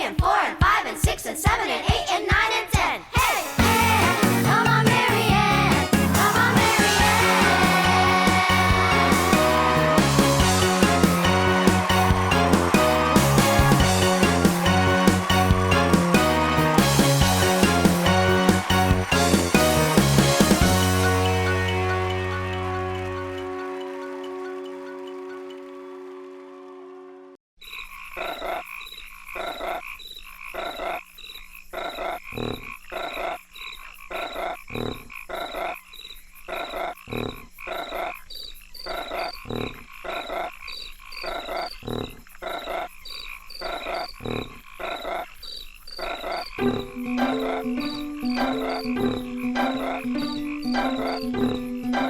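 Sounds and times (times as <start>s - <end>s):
musical bass line: 3.6s - 27.1s, 46.6s - 52.0s
frogs croaking: 27.6s - 52.0s
insects chirping: 27.6s - 52.0s.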